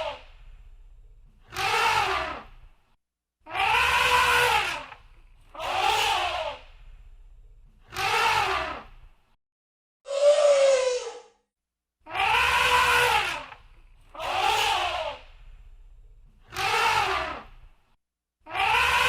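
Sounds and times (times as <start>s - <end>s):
elephant trumpeting: 3.5s - 4.9s, 12.1s - 13.5s.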